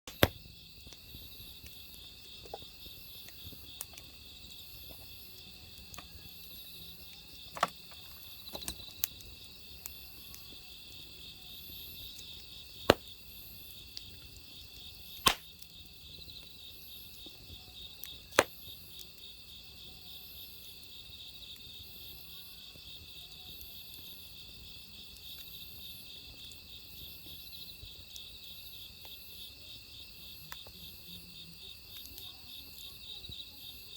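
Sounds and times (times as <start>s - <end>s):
sharp pops of fire: 0.1s - 19.2s
crickets chirping: 0.1s - 33.9s
wood fire crackling: 0.1s - 33.9s.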